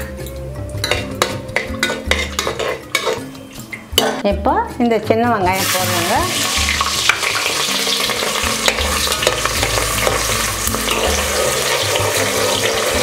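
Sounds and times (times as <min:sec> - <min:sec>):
metal ladle scraping a pot: 0:00.8 - 0:04.1, 0:05.6 - 0:13.0
shallots sizzling in hot oil: 0:05.5 - 0:13.0.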